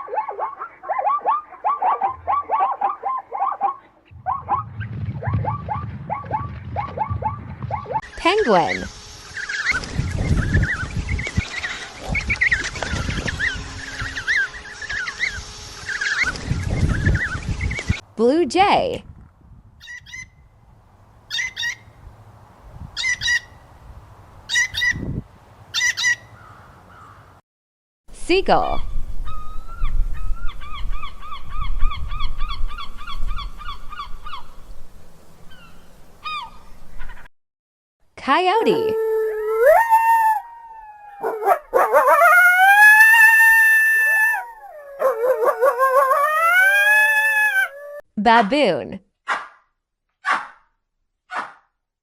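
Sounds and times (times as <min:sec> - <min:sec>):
coyote howling and yipping: 0:00.0 - 0:08.0, 0:38.6 - 0:48.0
blue jay harsh calls: 0:21.3 - 0:21.9, 0:23.0 - 0:23.6, 0:24.5 - 0:25.0, 0:25.7 - 0:27.2.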